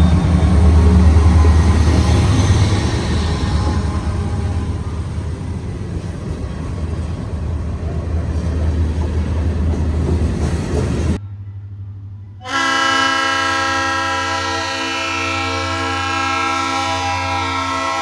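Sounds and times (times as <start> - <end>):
diesel locomotive rumbling: 0.0 - 11.2, 12.4 - 18.0
locomotive air horn: 12.4 - 18.0.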